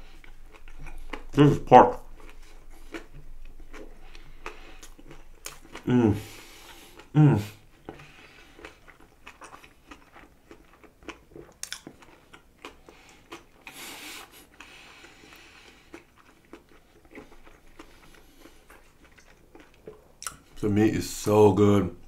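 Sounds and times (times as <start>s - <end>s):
chewing crunches: 0.0s - 7.2s, 7.8s - 20.5s
wet mouth clicks: 11.5s - 11.9s, 20.2s - 20.4s.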